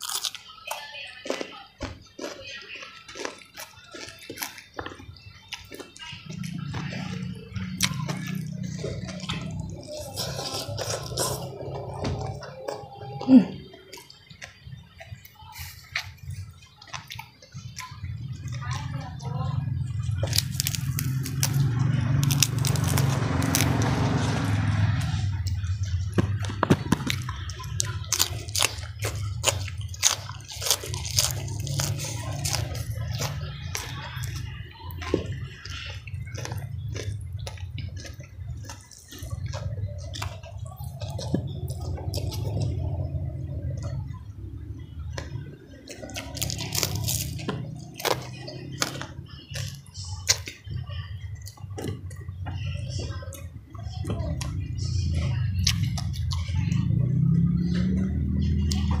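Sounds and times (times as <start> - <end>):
fingers picking at food on a plate: 0.0 - 19.3
wet chewing and smacking: 0.0 - 59.0.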